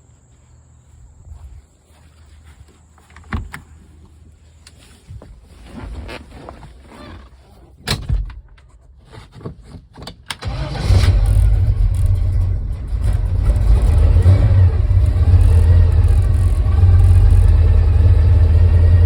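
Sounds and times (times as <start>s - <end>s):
car engine cranking and starting: 10.3s - 19.0s.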